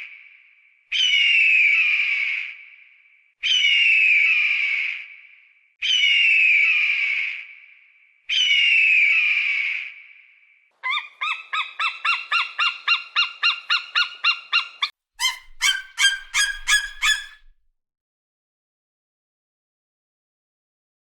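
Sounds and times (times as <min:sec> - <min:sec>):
bird of prey screaming: 0:10.8 - 0:17.5
bird of prey sharp repeated calls: 0:10.8 - 0:17.5.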